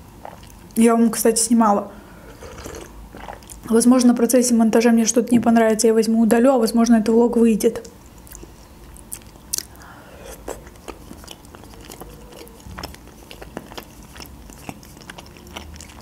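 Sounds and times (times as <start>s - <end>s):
wet chewing mouth clicks: 0.2s - 0.8s, 2.6s - 3.7s, 7.8s - 16.0s.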